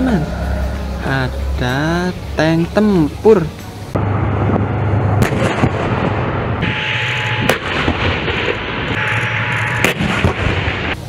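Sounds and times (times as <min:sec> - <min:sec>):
tank engine rumbling: 0:00.0 - 0:11.0
gunfire bangs: 0:05.2 - 0:09.1, 0:09.7 - 0:11.0.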